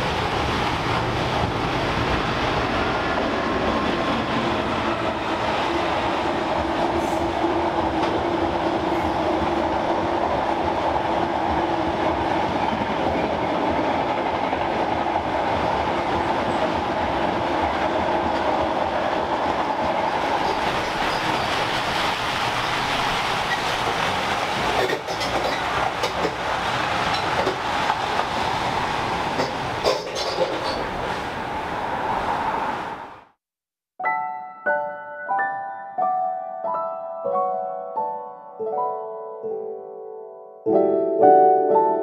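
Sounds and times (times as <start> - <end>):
freight wagons rolling on rails: 7.8 - 31.3.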